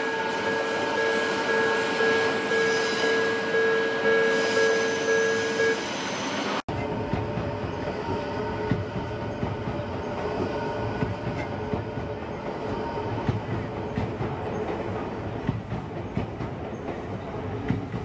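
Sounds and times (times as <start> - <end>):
train wheels clicking over rail joints: 6.7 - 18.0.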